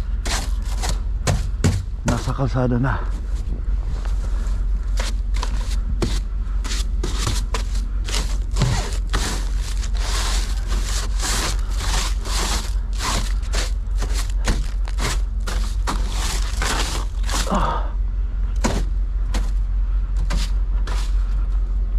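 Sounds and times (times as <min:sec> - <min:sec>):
low rumble: 0:00.0 - 0:21.9
snow scraped off truck roof: 0:00.2 - 0:02.5, 0:04.1 - 0:17.7, 0:20.2 - 0:21.3.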